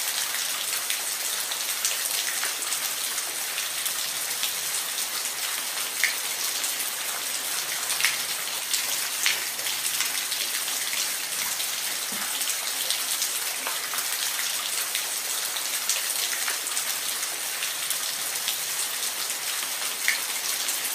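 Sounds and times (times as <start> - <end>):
steady rain hiss: 0.0 - 20.9.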